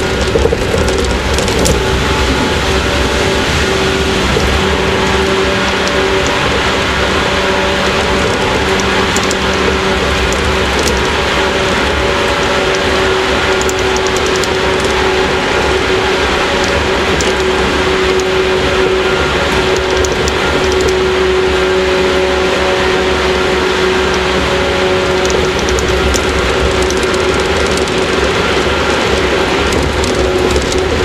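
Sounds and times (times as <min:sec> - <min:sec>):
traction motor and gear hum: 0:00.0 - 0:31.0
wheel and rail noise: 0:00.0 - 0:31.0.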